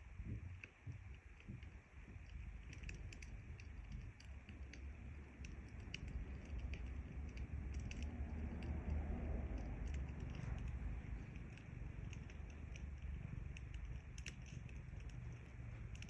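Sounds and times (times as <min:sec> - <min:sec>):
cat purring: 0:00.0 - 0:16.0
fire crackling and popping: 0:00.0 - 0:16.0.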